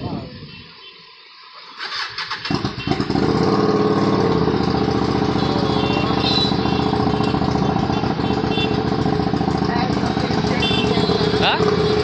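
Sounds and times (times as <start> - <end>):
loud motorcycle engine idling: 2.4 - 12.0.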